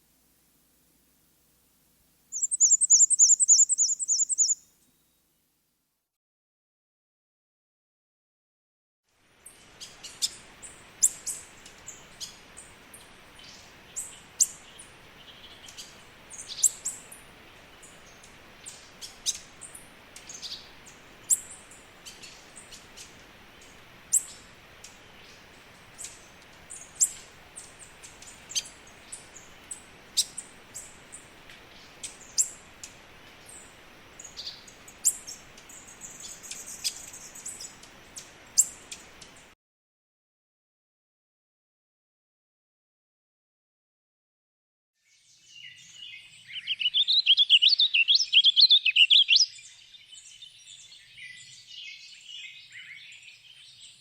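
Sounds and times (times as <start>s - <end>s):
faint steady hiss: 0.0s - 6.0s, 9.1s - 39.6s
small birds chirping: 2.3s - 4.7s, 9.5s - 39.5s, 45.0s - 54.0s.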